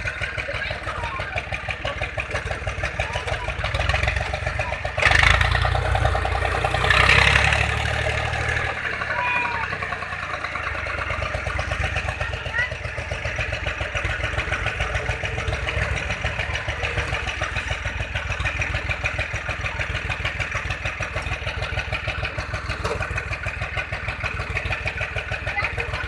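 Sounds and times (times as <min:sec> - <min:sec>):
diesel tractor engine chugging: 0:00.0 - 0:26.0.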